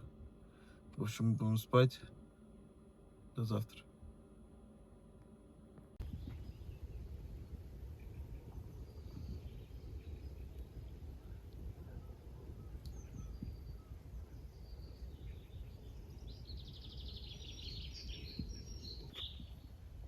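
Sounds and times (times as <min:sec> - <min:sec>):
low steady rumble: 0:00.0 - 0:20.0
small birds chirping: 0:06.0 - 0:20.0.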